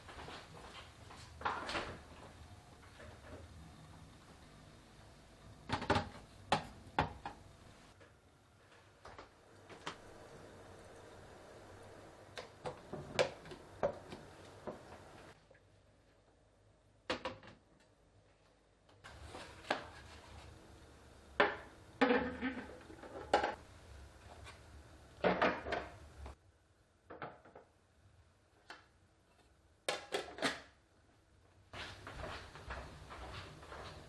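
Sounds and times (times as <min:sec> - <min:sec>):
containers knocking and clattering: 0:21.4 - 0:23.6.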